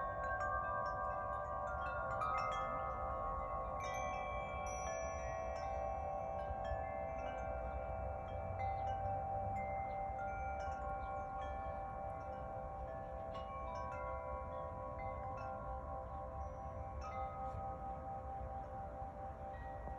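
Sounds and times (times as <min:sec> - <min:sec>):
wind chimes ringing: 0:00.0 - 0:19.9.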